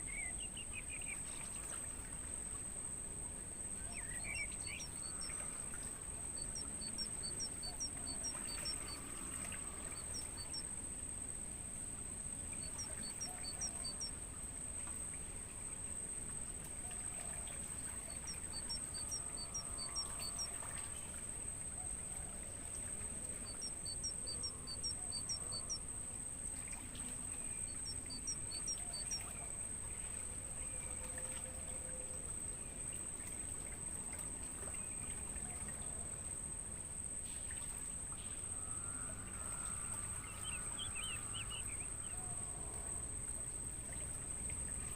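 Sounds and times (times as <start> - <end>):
crickets trilling: 0.0 - 44.9
bird chirping: 3.9 - 5.4, 6.2 - 9.2, 9.8 - 10.6, 12.6 - 14.1, 17.9 - 20.5, 23.4 - 25.8, 27.6 - 29.3, 40.3 - 42.2.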